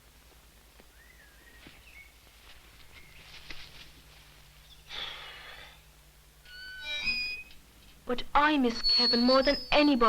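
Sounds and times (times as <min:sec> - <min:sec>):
faint farm ambience: 0:00.0 - 0:10.0
whistled bird calls: 0:00.9 - 0:02.2, 0:08.8 - 0:10.0
high bird chirps: 0:08.8 - 0:10.0.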